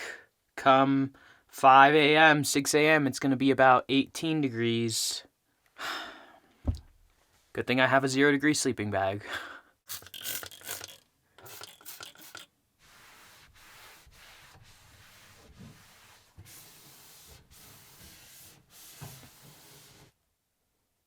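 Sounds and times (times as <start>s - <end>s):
pen scratching on paper: 12.8s - 20.1s.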